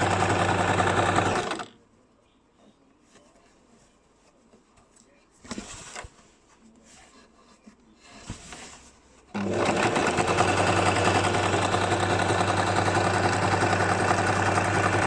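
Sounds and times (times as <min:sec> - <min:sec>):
sewing machine running: 0:00.0 - 0:01.7, 0:09.3 - 0:15.0
faint handling sounds: 0:01.8 - 0:09.4.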